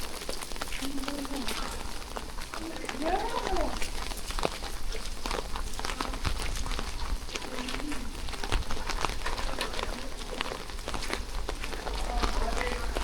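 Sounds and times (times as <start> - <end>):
raindrops ticking on surfaces: 0.0 - 13.0.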